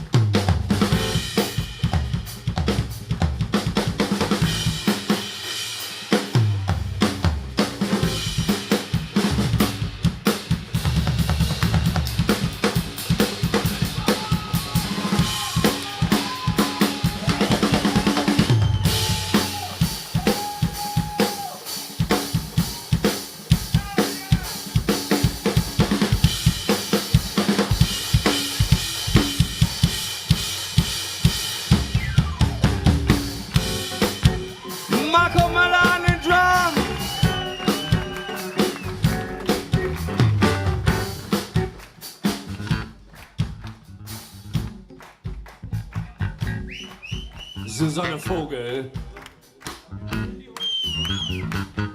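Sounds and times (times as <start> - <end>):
drum kit groove: 0.0 - 51.9
electric bass solo: 35.2 - 41.8, 42.4 - 45.0, 45.6 - 46.8, 49.9 - 51.9.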